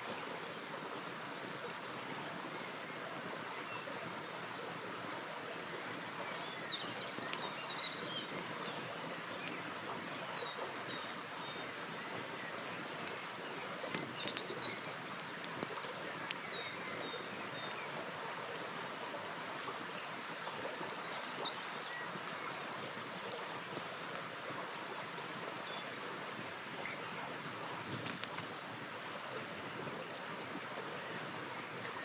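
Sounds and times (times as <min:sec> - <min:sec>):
river water flowing: 0:00.0 - 0:32.0
campfire crackling and popping: 0:00.2 - 0:02.8, 0:04.0 - 0:10.9, 0:11.6 - 0:21.5, 0:27.3 - 0:28.8.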